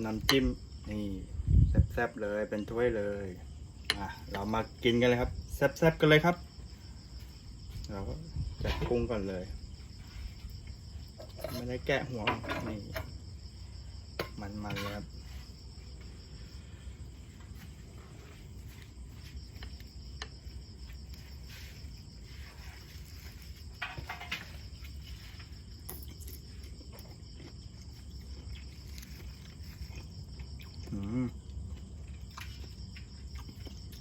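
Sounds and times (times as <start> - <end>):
insects chirring: 0.0 - 34.0
clicks and rustles of eating: 22.7 - 34.0.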